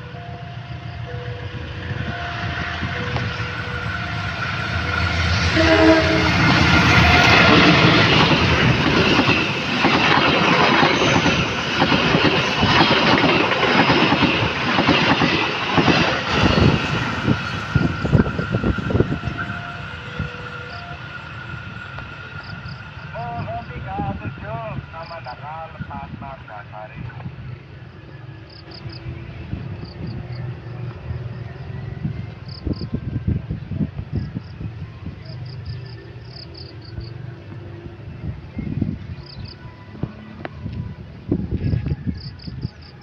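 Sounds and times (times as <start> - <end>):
diesel locomotive passing: 0.0 - 43.0
train horn blast: 1.2 - 8.2, 16.3 - 24.4.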